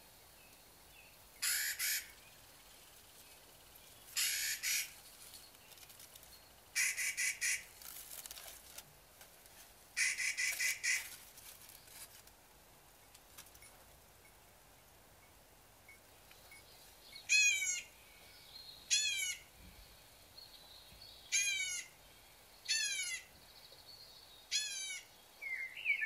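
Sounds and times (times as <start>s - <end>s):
bird chattering calls: 1.4s - 2.2s, 4.2s - 5.0s, 6.8s - 7.7s, 10.0s - 11.1s.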